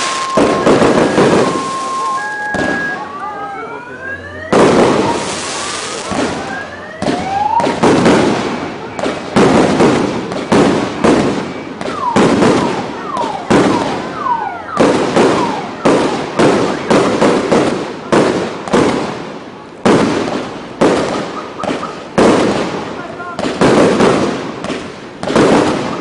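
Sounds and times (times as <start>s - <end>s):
falling firework whistles: 0.0s - 3.2s, 4.5s - 7.8s.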